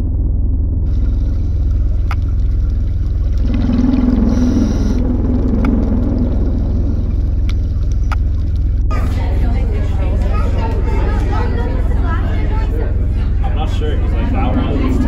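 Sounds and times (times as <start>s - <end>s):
loud low underwater rumble: 0.0s - 15.0s
low hum: 0.0s - 15.0s.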